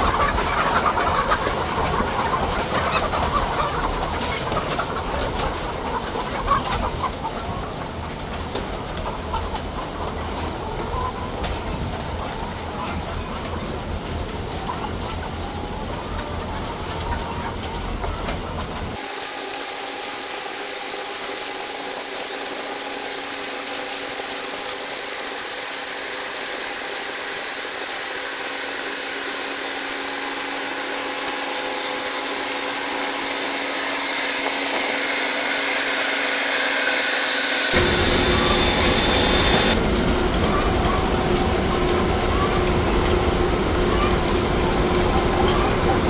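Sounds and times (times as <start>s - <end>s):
machinery humming: 32.4s - 46.0s
hiss: 37.3s - 46.0s
high squeal: 37.7s - 46.0s.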